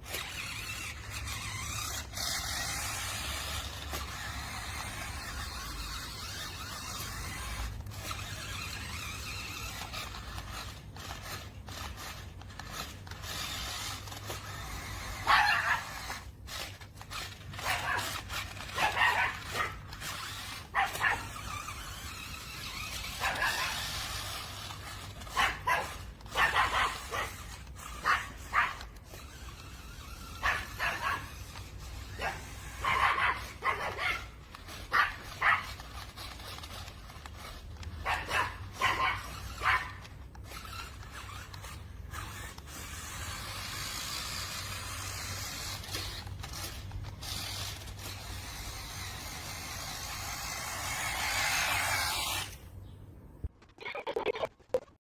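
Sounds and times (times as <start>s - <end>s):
dog barking: 15.2s - 16.0s, 18.8s - 19.8s, 20.8s - 21.3s, 23.2s - 23.8s, 25.3s - 27.3s, 28.0s - 28.8s, 30.4s - 31.3s, 32.2s - 34.3s, 34.9s - 35.7s, 38.0s - 40.0s.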